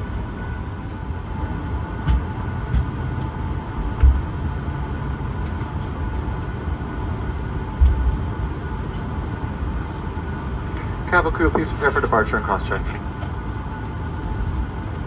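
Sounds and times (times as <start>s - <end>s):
aircraft cabin ventilation hum: 0.0s - 15.0s
faint steady whining tones: 0.0s - 15.0s
dull low thumps: 3.8s - 4.6s, 7.6s - 8.4s.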